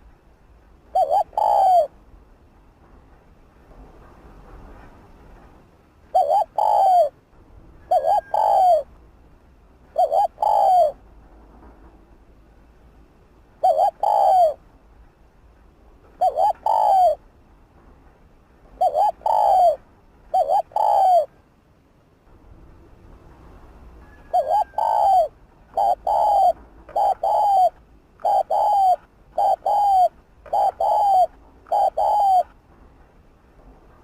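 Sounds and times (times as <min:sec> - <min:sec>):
dove cooing: 0:00.9 - 0:02.0, 0:06.1 - 0:07.2, 0:07.8 - 0:08.9, 0:09.9 - 0:11.0, 0:13.6 - 0:14.6, 0:16.2 - 0:17.2, 0:18.8 - 0:21.4, 0:24.1 - 0:32.6.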